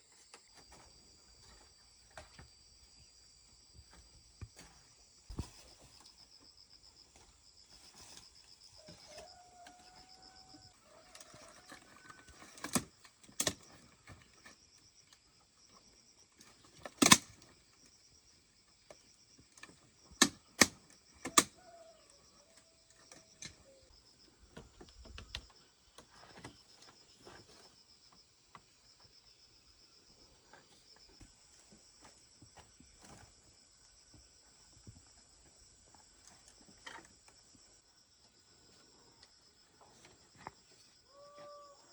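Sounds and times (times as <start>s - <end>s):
insects chirping: 0.0s - 41.9s.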